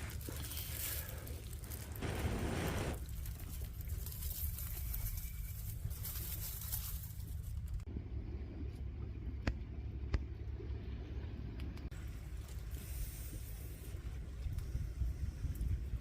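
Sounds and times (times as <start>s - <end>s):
wind rumble on microphone: 1.7s - 7.9s, 13.3s - 16.0s.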